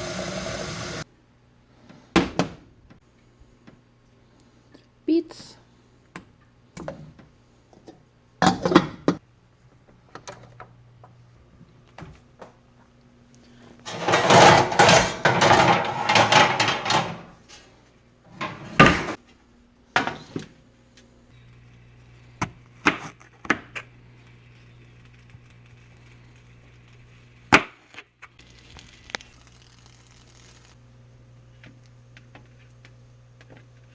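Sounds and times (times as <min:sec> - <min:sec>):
kitchenware clattering and rustling: 0:13.9 - 0:19.2.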